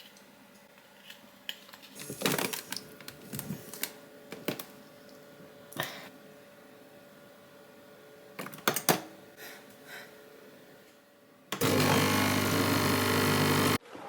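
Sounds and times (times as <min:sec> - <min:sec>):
coffee machine motor humming and hissing: 0:11.6 - 0:13.8.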